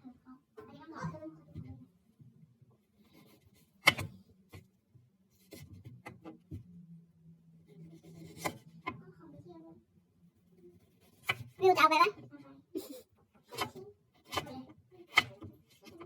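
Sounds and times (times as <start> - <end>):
faint low hum: 0.0 - 16.0
knocks and clicks of handling: 3.8 - 4.7.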